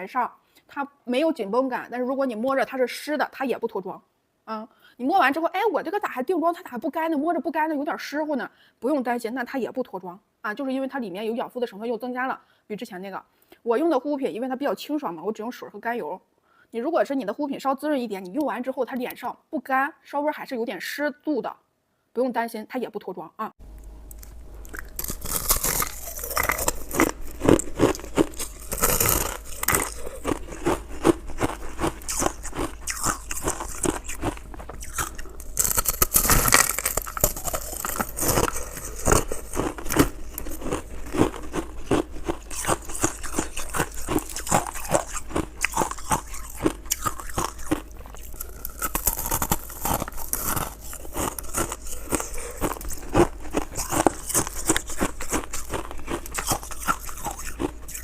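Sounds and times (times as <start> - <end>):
person chewing crunchy ice: 23.7 - 58.0.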